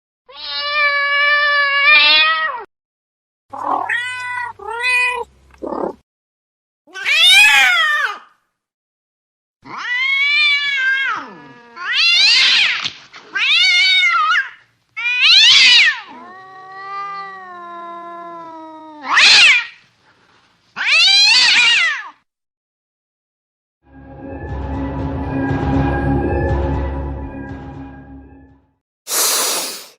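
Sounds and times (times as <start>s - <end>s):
cats yowling: 0.3s - 2.7s, 3.5s - 6.0s, 6.9s - 8.3s, 9.6s - 19.8s, 20.8s - 22.2s
cat growling: 3.5s - 6.0s, 10.8s - 12.2s.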